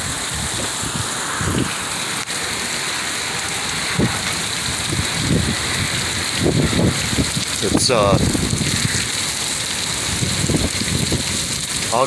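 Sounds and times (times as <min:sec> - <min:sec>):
rain falling steadily: 0:00.0 - 0:12.0.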